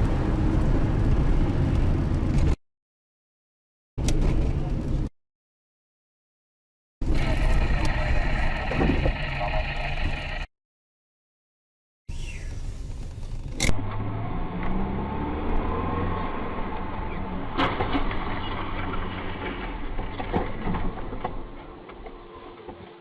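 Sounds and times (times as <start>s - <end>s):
car engine and road noise: 0.0s - 2.6s, 4.0s - 5.1s, 7.0s - 10.5s, 12.1s - 23.0s.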